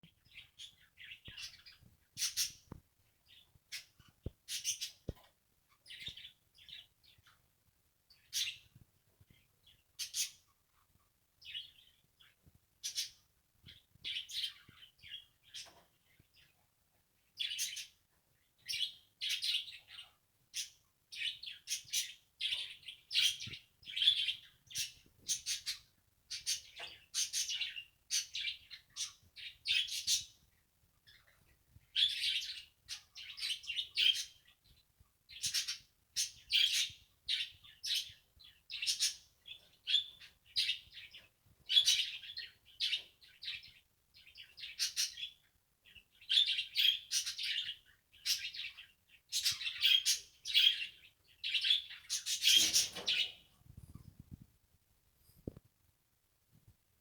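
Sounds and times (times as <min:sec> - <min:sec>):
budgerigars chirping and warbling: 0:00.3 - 0:02.6, 0:32.0 - 0:34.4, 0:35.3 - 0:53.5.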